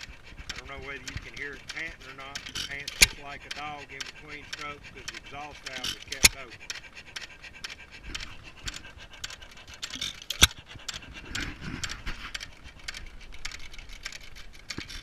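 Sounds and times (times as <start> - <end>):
gas engine puffing and clicking: 0.0 - 15.0.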